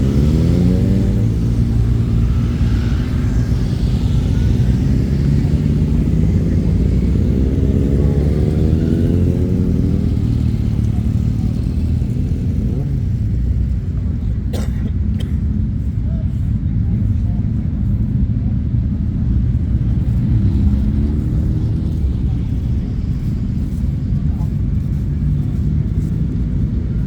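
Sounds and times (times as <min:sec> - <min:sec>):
motorcycle accelerating away: 0:00.0 - 0:13.8, 0:19.6 - 0:27.0
motorcycle engines rumbling: 0:00.0 - 0:27.0.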